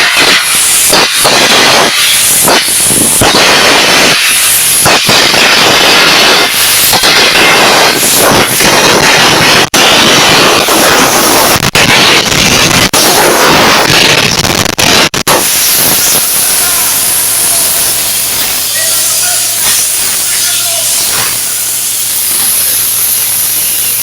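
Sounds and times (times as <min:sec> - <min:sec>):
air hissing: 0:00.0 - 0:24.0
arc gouging torch noise: 0:00.0 - 0:24.0.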